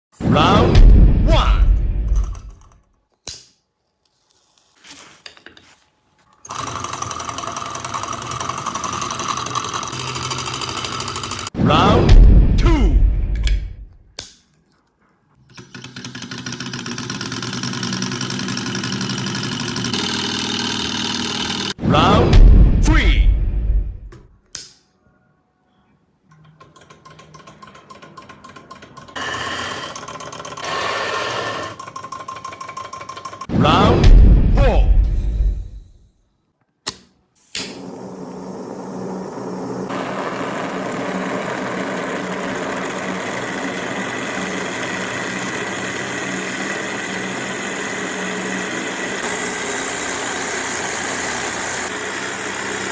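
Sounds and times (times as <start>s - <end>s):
faint handling sounds: 3.1s - 6.4s
small engine rattling: 6.5s - 11.5s, 15.6s - 21.8s, 26.6s - 33.5s, 39.9s - 52.9s.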